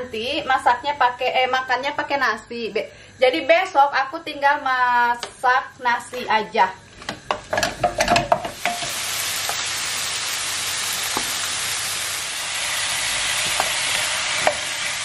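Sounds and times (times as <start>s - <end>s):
wooden spoon knocking pan: 7.1s - 8.9s
chicken sizzling in oil: 8.2s - 15.0s.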